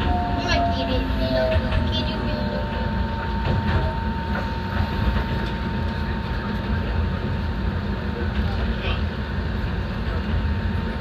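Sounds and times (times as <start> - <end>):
faint high tone: 0.0 - 3.0
train wheels rumbling: 0.0 - 11.0.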